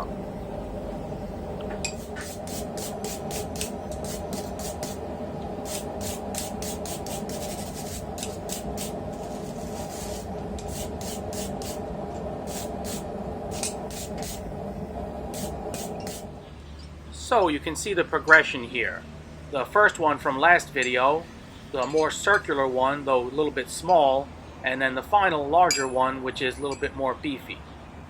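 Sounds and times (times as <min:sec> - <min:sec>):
steady low hum: 0:00.0 - 0:24.6
hand tool scraping steel: 0:05.7 - 0:11.8, 0:13.6 - 0:14.4.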